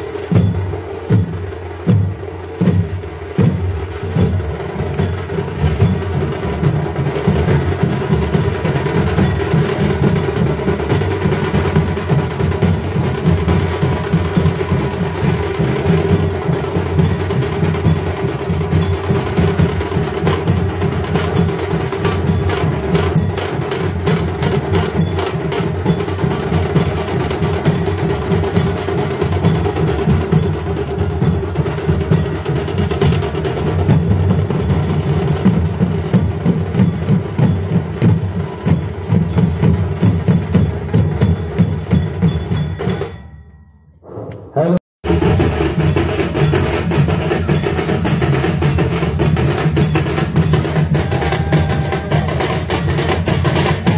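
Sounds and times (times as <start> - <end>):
rapid dense drumming: 0.0 - 43.2, 45.0 - 53.9.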